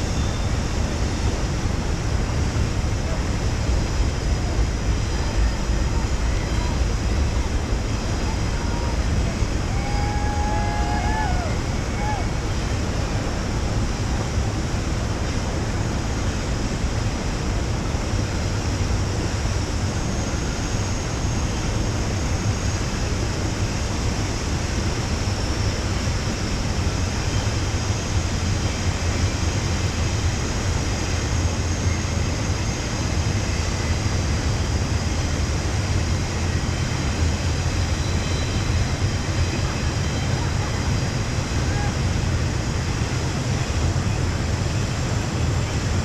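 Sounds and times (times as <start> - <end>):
whitewater rushing: 0.5 - 16.0.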